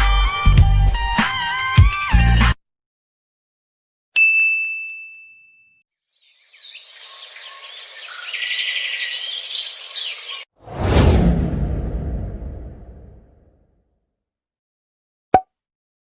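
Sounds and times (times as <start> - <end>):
bright ding: 4.2 - 5.8
many birds chirping: 6.2 - 10.5.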